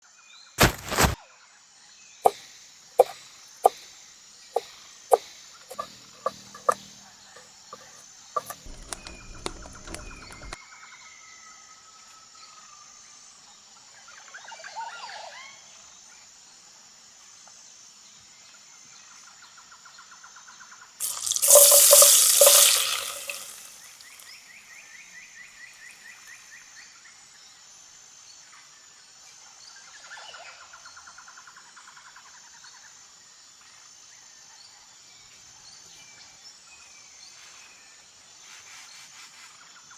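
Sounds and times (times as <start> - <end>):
bird and insect trills: 3.0 - 3.9, 4.5 - 10.6, 21.0 - 24.4
water pouring into a pot: 5.7 - 6.8, 21.0 - 24.2.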